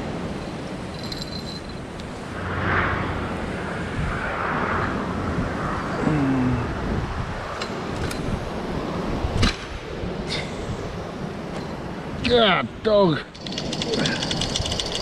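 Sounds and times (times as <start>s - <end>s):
gusting wind: 0.0s - 15.0s
road traffic: 0.0s - 15.0s
low sliding tone: 2.2s - 5.4s.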